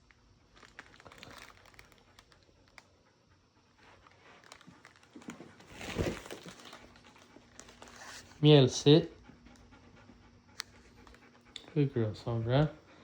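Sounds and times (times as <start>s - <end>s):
puppies moving and rustling: 3.8s - 9.1s.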